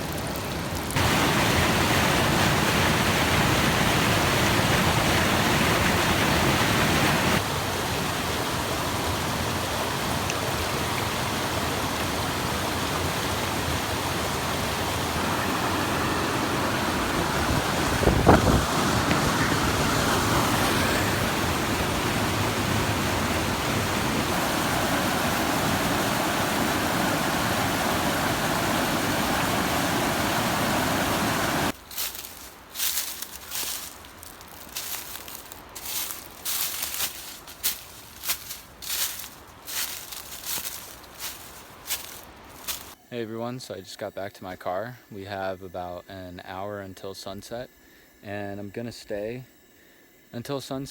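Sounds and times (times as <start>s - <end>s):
stream running over rocks: 0.0s - 43.0s
faint rustles: 31.8s - 43.0s.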